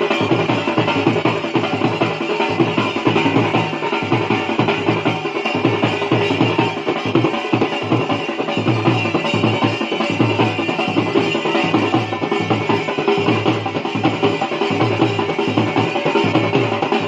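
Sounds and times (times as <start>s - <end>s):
folk dance music: 0.0s - 17.0s
rapid dhol drumming: 0.0s - 17.0s.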